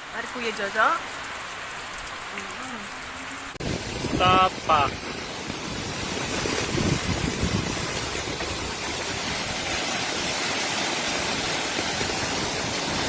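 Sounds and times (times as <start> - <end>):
water rushing: 0.0 - 13.0
low rumbles: 1.0 - 10.2.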